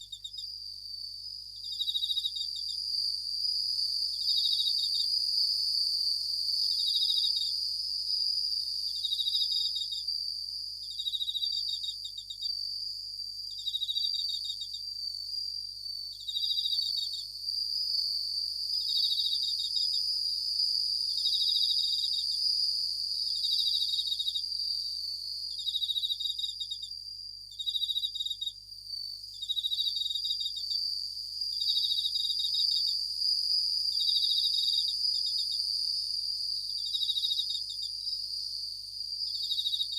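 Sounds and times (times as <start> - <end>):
short pulsed cricket trills: 0.0 - 39.9
crickets ringing trill: 25.5 - 39.9.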